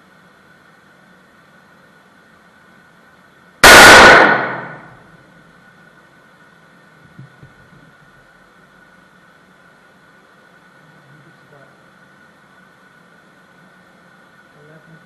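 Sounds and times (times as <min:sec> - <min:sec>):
loud gunshot with echo: 0:03.6 - 0:05.0.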